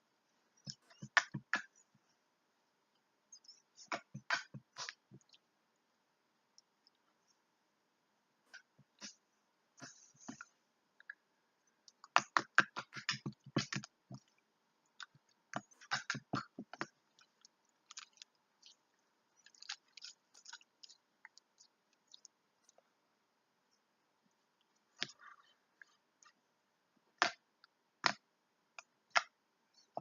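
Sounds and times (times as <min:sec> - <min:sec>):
slime squelching under fingers: 0:11.8 - 0:22.8.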